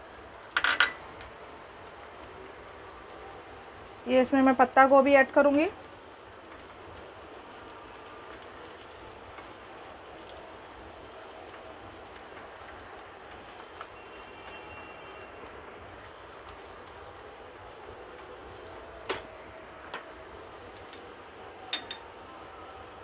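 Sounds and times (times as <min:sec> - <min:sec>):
vegetables sizzling in oil: 0:00.0 - 0:23.0
spatula tapping wok: 0:21.7 - 0:22.1.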